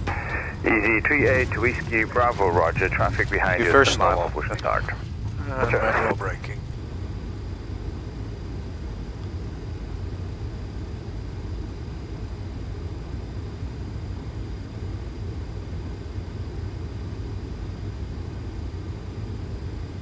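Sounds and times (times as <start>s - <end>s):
low rumble of engines and wheels: 0.0s - 7.0s.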